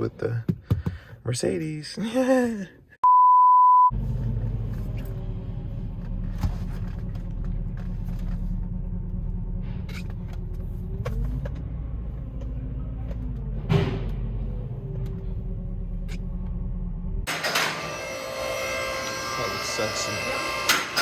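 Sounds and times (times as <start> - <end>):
censor bleep: 3.0 - 3.9
steady beep: 3.0 - 3.9
car engine running: 4.0 - 13.6.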